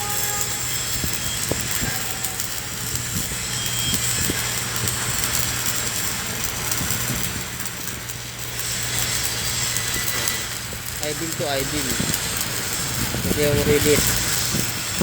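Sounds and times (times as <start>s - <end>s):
welding arc hissing and crackling: 0.0s - 15.0s.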